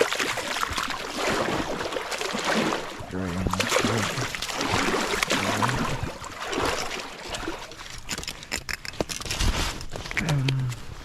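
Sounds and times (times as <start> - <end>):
river water rushing: 0.0 - 7.8.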